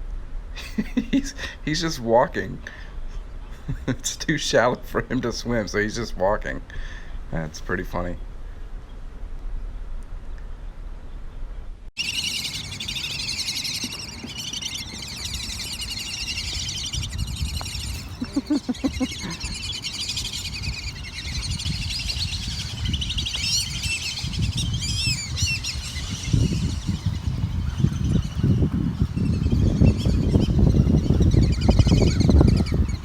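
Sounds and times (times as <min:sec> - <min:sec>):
small birds chirping and twittering: 0:02.7 - 0:04.0, 0:12.0 - 0:33.0
low pulsed bird calls: 0:12.0 - 0:33.0.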